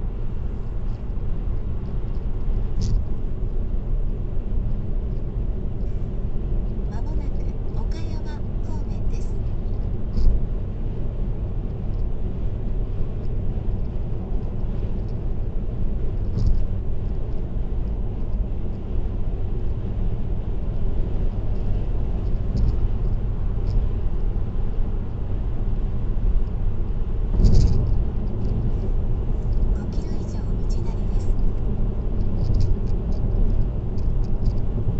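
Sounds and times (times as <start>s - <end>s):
car road and tyre rumble: 0.0s - 34.9s
faint ticks: 16.1s - 18.8s, 32.2s - 34.7s.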